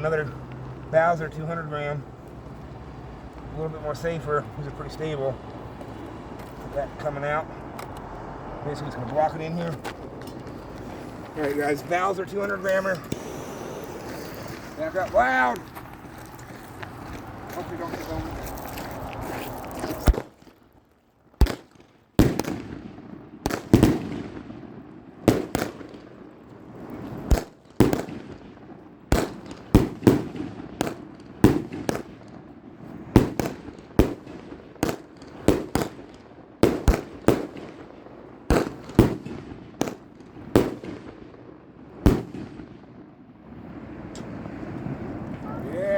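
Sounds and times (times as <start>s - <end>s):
firework bangs: 8.1s - 16.1s, 19.9s - 20.5s, 21.4s - 45.6s
firework crackle: 9.0s - 20.5s, 21.4s - 43.0s.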